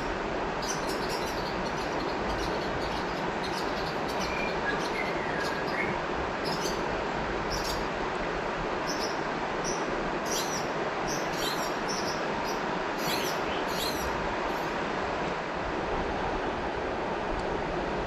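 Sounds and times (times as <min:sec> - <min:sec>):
river water flowing: 0:00.0 - 0:18.0
bird chirping: 0:08.9 - 0:14.1.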